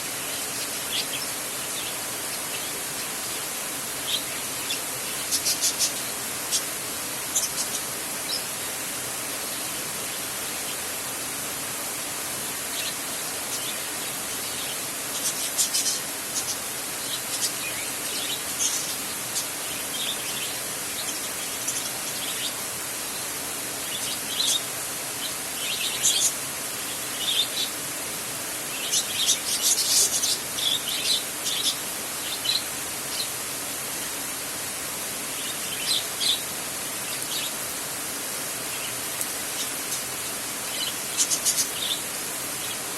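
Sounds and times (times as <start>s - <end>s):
bird chirps: 38.7s - 42.9s.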